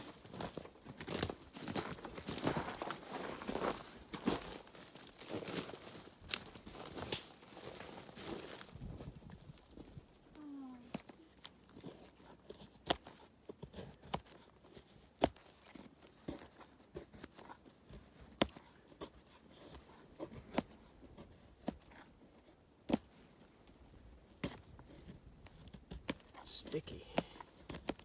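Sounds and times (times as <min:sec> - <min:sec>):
twigs snapping: 0:04.2 - 0:08.4.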